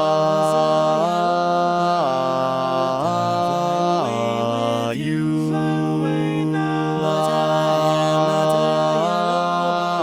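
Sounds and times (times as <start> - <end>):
a cappella harmony singing: 0.0 - 10.0.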